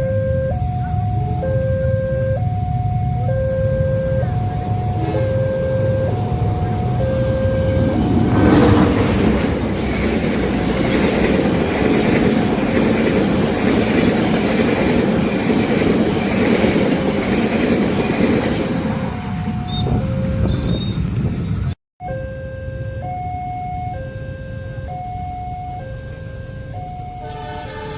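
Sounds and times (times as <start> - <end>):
two-tone crossing warning alarm: 0.0 - 21.3, 22.0 - 27.9
train wheels rumbling on rails: 4.1 - 21.7.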